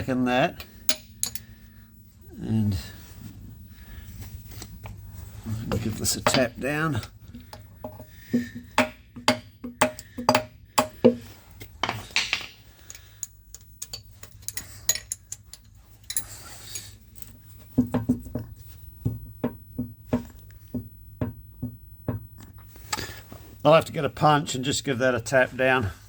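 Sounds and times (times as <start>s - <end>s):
metal scraping and clinks: 0.6s - 1.6s, 11.8s - 17.3s
hammer tapping on metal: 7.4s - 11.2s.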